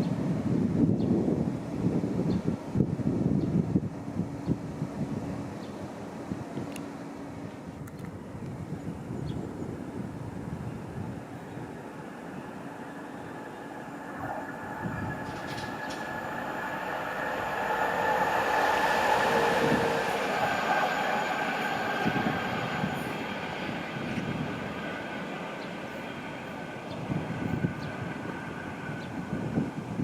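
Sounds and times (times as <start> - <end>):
train rumbling: 0.1 - 30.0
steady train tones: 8.6 - 30.0.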